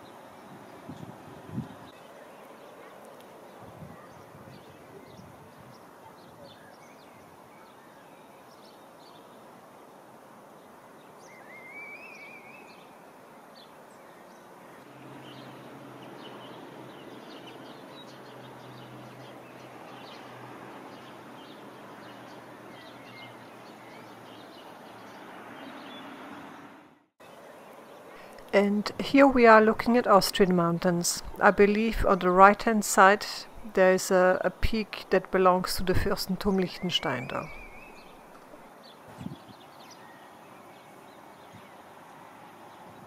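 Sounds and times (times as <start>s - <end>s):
bird chirps and calls: 35.9s - 41.8s.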